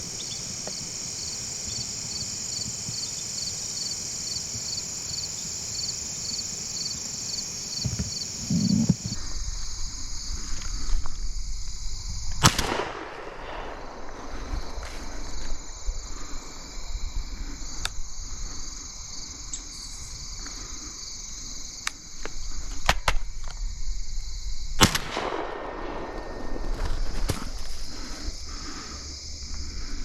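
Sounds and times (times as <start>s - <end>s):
crickets chirring: 0.0s - 30.0s
shotgun bang: 12.4s - 14.0s, 24.8s - 26.4s.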